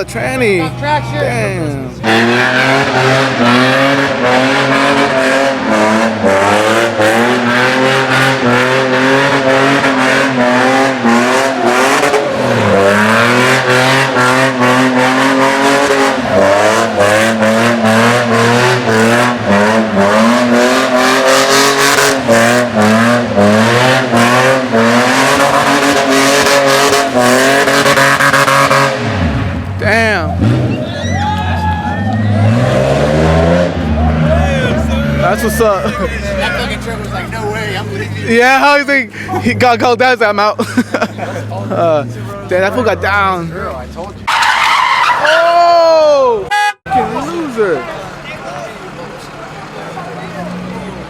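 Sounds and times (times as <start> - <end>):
car engine revving high: 0.0 - 40.0
tyres squealing: 30.3 - 33.0, 41.2 - 51.0.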